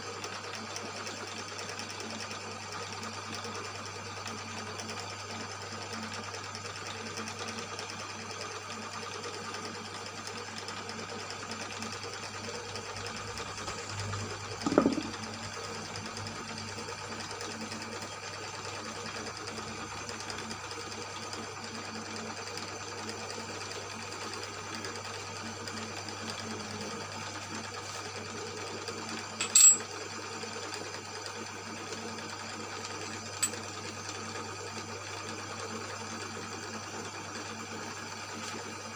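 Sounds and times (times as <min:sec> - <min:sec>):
boring machine humming: 0:13.3 - 0:16.2.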